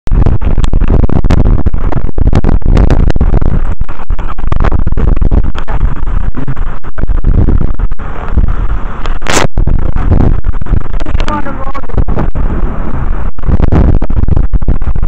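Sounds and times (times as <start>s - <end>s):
rough water: 0.1s - 15.0s
wind buffeting microphone: 0.1s - 15.0s.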